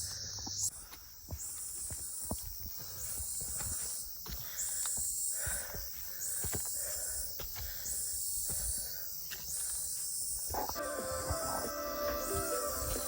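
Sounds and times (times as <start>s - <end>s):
footsteps on forest trail: 0.0s - 13.0s
music: 10.8s - 13.0s.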